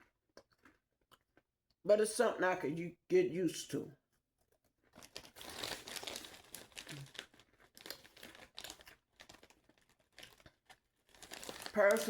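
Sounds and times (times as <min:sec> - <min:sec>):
plastic snack bag crinkling: 0:04.8 - 0:12.0.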